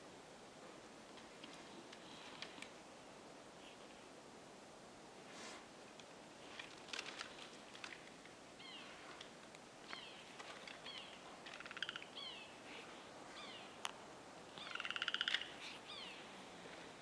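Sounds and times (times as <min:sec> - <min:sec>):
birds calling: 0:09.8 - 0:13.9, 0:14.5 - 0:17.0
bird rattling trills: 0:09.9 - 0:12.4, 0:14.6 - 0:16.1.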